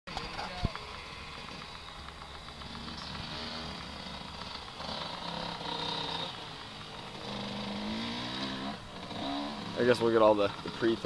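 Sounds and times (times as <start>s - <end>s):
dirt bike engine running: 0.1s - 11.0s.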